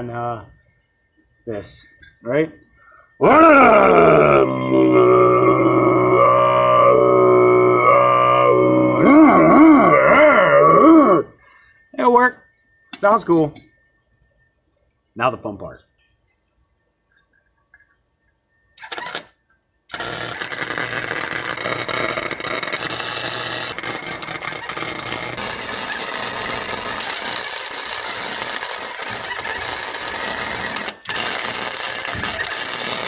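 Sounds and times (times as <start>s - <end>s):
welder arc crackling: 18.8s - 33.0s.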